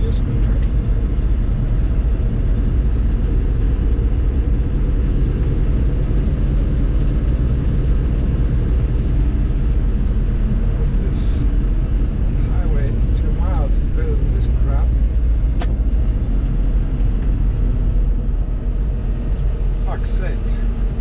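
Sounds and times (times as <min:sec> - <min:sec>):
truck engine and road rumble: 0:00.0 - 0:21.0.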